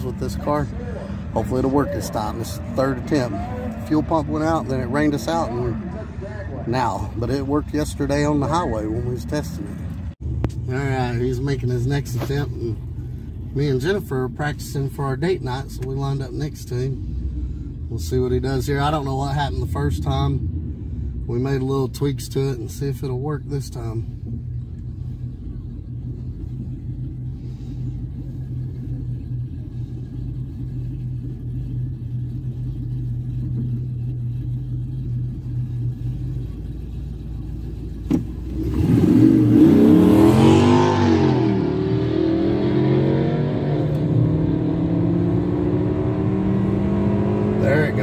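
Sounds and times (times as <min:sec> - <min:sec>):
drag car engines idling: 0:00.0 - 0:39.6
car engine accelerating: 0:00.0 - 0:48.0
car engine launching at full throttle: 0:38.0 - 0:48.0.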